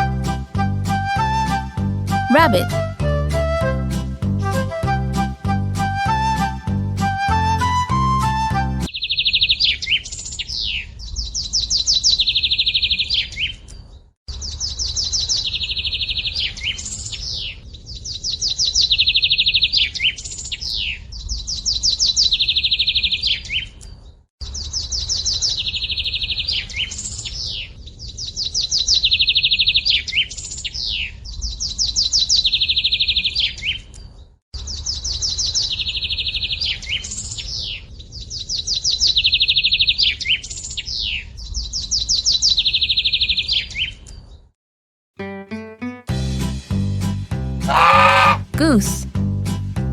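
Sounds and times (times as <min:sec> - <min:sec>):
songbird trilling: 0:47.7 - 0:48.5.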